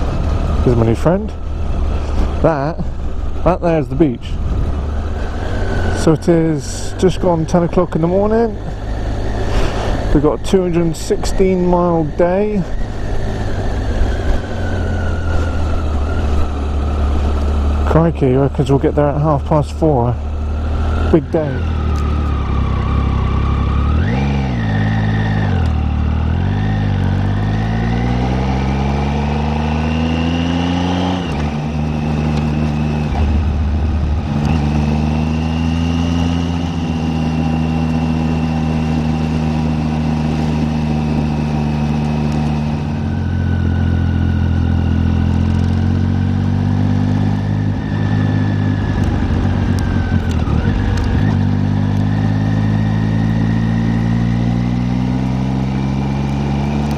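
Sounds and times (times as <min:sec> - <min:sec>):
motorcycle engine pulling away: 0:20.2 - 0:56.9.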